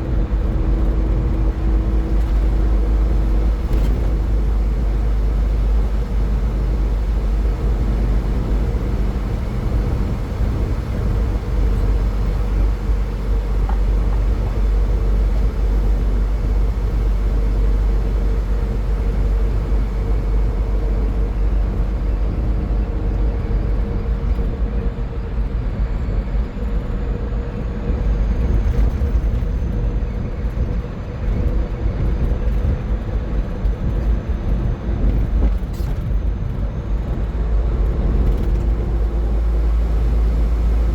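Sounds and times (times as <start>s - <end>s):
tyre and road noise: 0.0s - 24.4s
low car hum: 0.0s - 40.9s.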